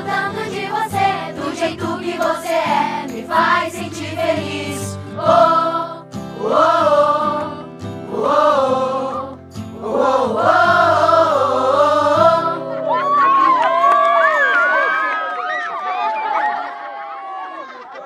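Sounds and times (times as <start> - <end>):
backing music: 0.0 - 13.0
voices singing with vibrato: 0.0 - 13.2.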